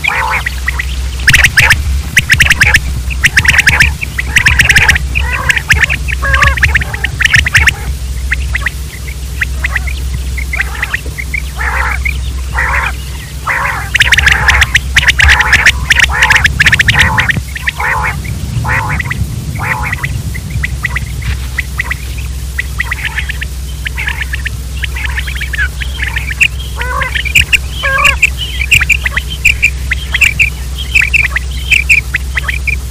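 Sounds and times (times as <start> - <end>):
quail calling: 0.0 - 32.9
steady low hum: 0.0 - 32.9.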